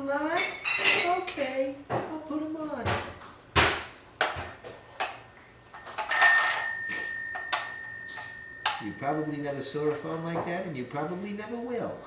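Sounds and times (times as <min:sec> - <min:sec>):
telephone ringing tone: 0:05.8 - 0:10.2.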